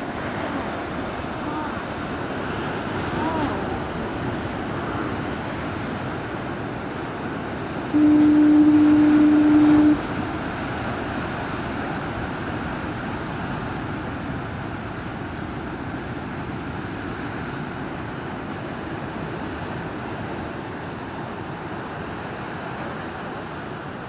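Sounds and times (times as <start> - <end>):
pounding surf: 0.0 - 24.0
low horn note: 8.0 - 10.0.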